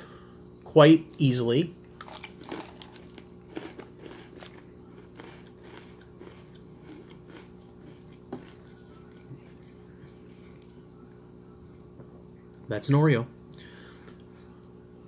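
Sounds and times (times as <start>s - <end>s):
cookie crunching: 1.1s - 11.8s.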